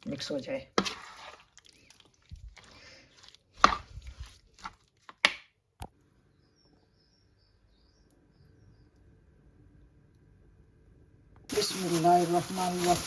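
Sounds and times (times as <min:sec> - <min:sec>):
wet scraping and squelching in bowl: 0:00.0 - 0:05.5.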